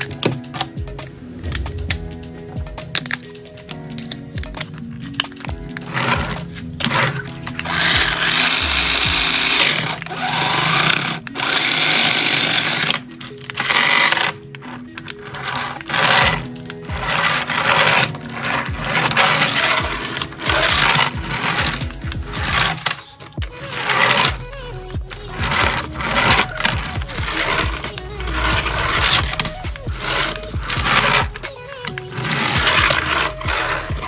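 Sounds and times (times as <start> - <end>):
background music: 0.0 - 34.0
toy car electric motor whirring: 5.1 - 34.0.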